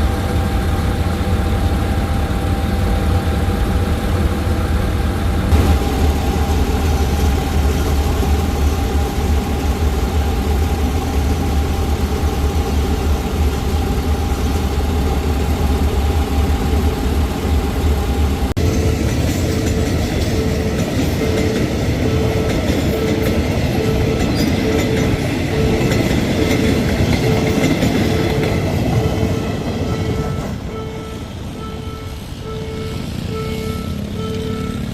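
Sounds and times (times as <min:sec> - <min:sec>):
diesel train engine idling: 0:00.0 - 0:34.9
train running rushing noise: 0:00.0 - 0:34.9
pulsing warning tone: 0:18.6 - 0:34.9.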